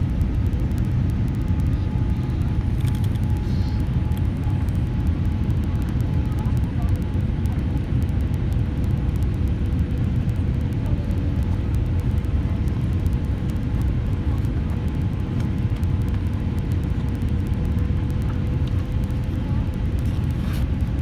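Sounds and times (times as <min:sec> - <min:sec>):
engine and airflow rumble: 0:00.0 - 0:21.0
faint hum: 0:00.0 - 0:21.0.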